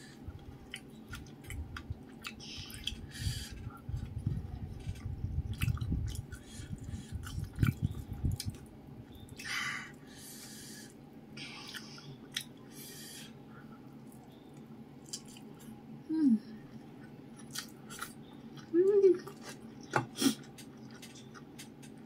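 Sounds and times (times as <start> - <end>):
close chewing with wet clicks: 0.4 - 9.4, 11.6 - 12.6, 13.9 - 15.7, 17.3 - 22.0.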